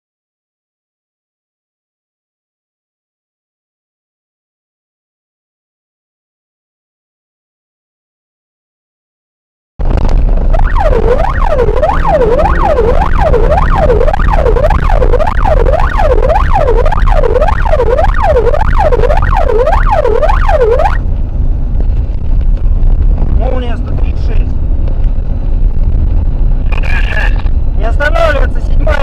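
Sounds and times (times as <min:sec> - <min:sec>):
low vehicle rumble: 0:09.8 - 0:29.0
emergency siren yelping: 0:10.5 - 0:21.0.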